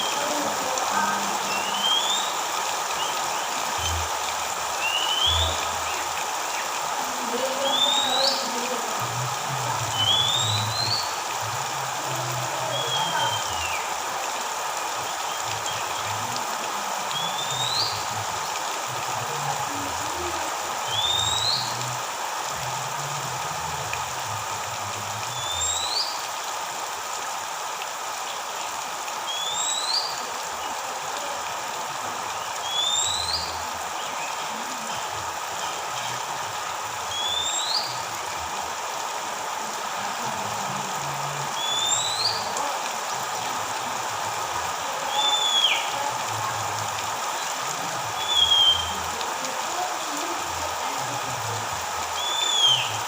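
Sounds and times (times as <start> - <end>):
bird whistling: 1.5 - 2.4, 4.8 - 5.6, 10.0 - 11.0, 20.9 - 21.7, 32.7 - 33.5, 37.1 - 38.0, 41.6 - 42.4, 45.2 - 45.9, 48.2 - 48.9, 52.2 - 52.9.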